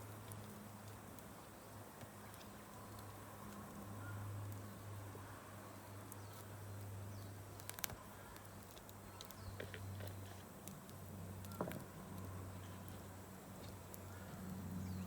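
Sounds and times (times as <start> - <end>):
campfire crackling: 0.0 - 15.0
sharp fire cracks: 7.4 - 9.4.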